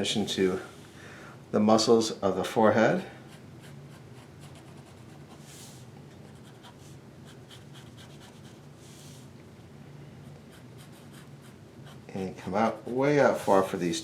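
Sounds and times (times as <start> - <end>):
pencil strokes on paper: 10.3 - 13.8.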